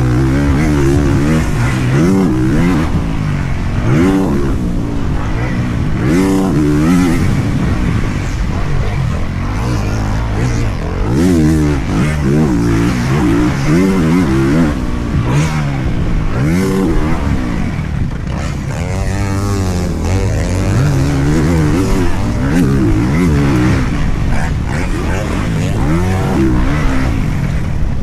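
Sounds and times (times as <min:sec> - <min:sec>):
motocross bike engine revving: 0:00.0 - 0:28.0.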